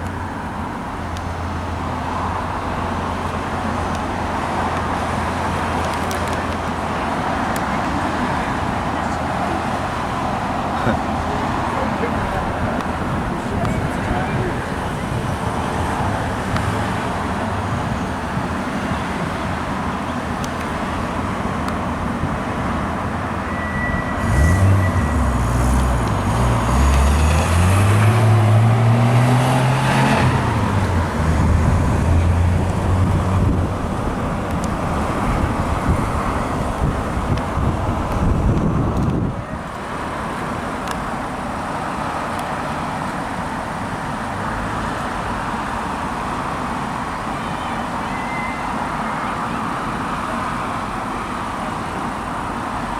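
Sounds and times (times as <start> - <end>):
road traffic: 0.0 - 52.9
car accelerating past: 23.2 - 33.9.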